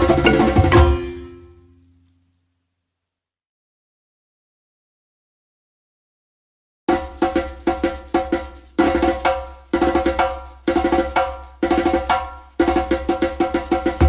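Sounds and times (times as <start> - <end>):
background music with percussive beat: 0.0 - 1.4, 6.9 - 14.0.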